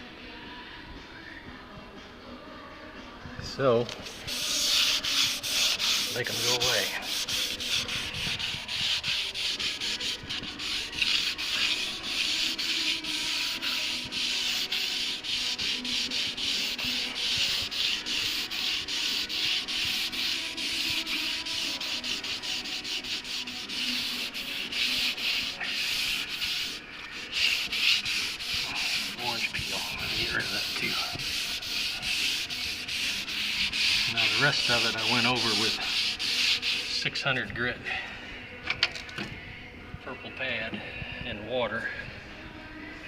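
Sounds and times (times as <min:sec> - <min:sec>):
sandpaper rubbing back and forth: 0:04.0 - 0:37.4.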